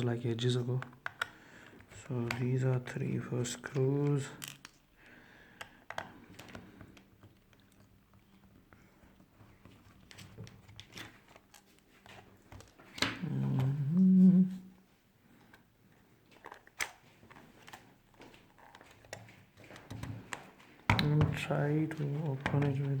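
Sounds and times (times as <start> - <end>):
screwdriver and plastic parts clicking: 0.6 - 3.0, 3.6 - 4.9, 5.6 - 8.6, 9.8 - 13.7, 16.4 - 23.0
voiced sound with wavering pitch: 13.2 - 14.6.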